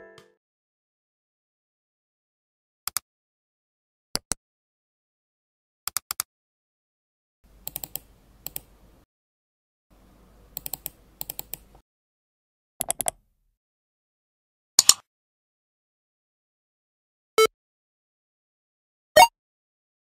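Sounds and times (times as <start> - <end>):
mouse clicks: 7.6 - 8.7, 10.6 - 11.8, 12.8 - 13.2, 14.8 - 15.0.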